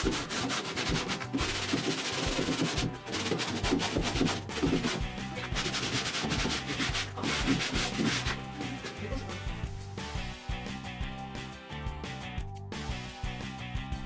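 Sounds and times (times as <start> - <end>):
sanding strokes: 0.0 - 9.1
background music: 0.0 - 14.0.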